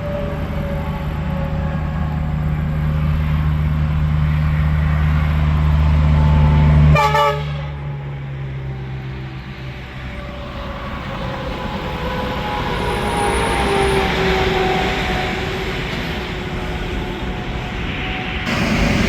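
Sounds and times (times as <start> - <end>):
truck horn toot: 6.9 - 7.8
truck passing: 18.5 - 19.0.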